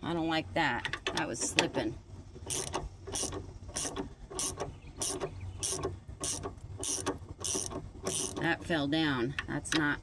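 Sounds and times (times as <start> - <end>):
ratchet wrench clicking: 2.4 - 8.4.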